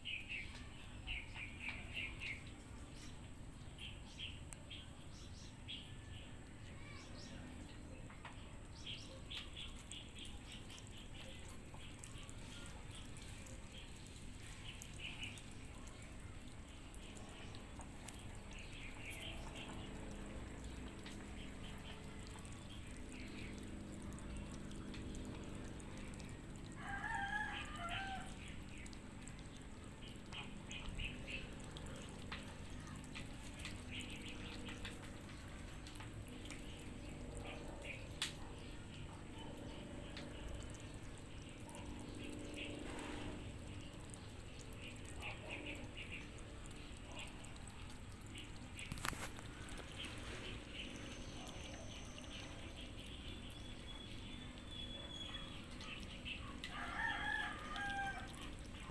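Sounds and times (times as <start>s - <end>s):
cats crunching kibble: 48.9s - 51.1s.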